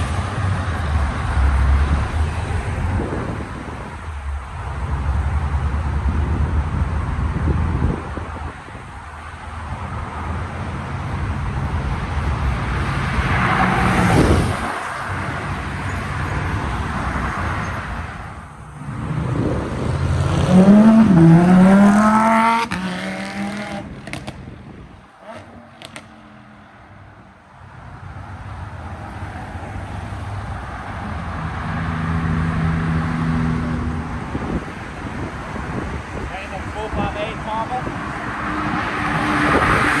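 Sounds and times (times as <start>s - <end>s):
steady engine hum: 0.0s - 24.0s
cars passing by: 0.0s - 40.0s.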